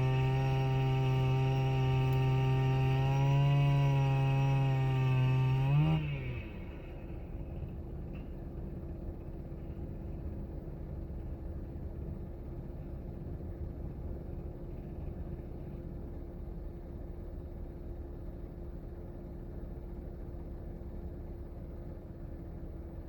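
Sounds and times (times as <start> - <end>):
faint constant hum: 6.4 - 23.0.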